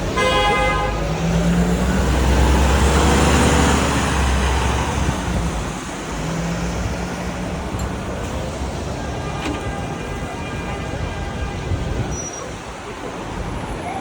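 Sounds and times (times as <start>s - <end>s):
heavy vehicle rumbling past: 0.0s - 13.7s
car horn toot: 0.1s - 1.1s, 8.9s - 12.5s.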